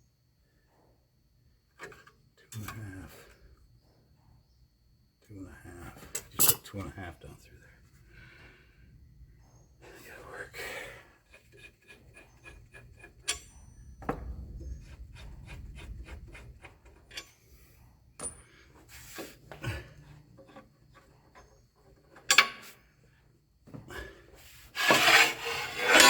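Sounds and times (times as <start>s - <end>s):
tools and metal parts clicking: 6.1s - 6.7s, 11.4s - 13.6s, 16.3s - 17.6s, 20.4s - 22.8s.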